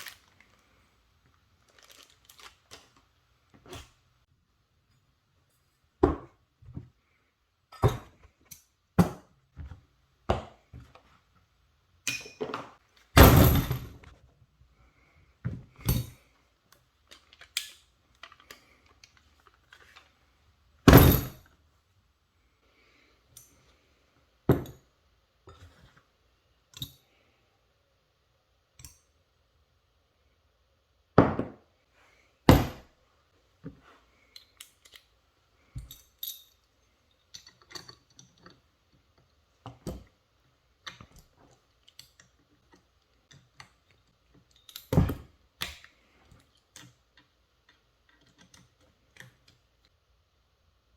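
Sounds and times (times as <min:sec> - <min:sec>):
hard objects knocking and clunking: 0:31.2 - 0:31.6.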